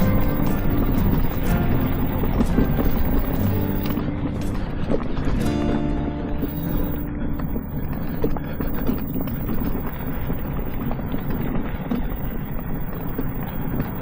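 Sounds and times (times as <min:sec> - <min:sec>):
scooter wheels rumbling: 0:00.0 - 0:05.7, 0:06.4 - 0:14.0
wind on microphone: 0:06.4 - 0:14.0.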